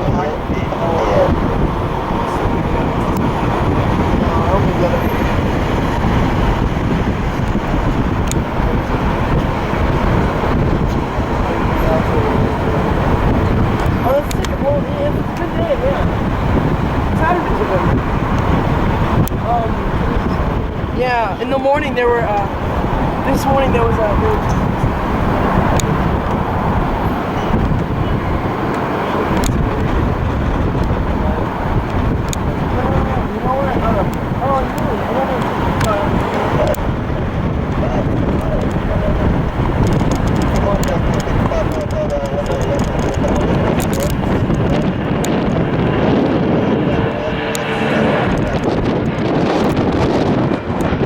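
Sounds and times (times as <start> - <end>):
jet engine roar: 0.0 - 51.0
low vehicle rumble: 0.0 - 51.0
wind buffeting microphone: 0.0 - 51.0
faint clicks: 34.0 - 36.8, 39.8 - 45.6.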